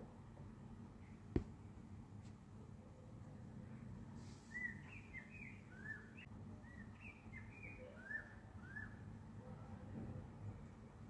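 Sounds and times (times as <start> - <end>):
small birds chirping: 3.8 - 9.0.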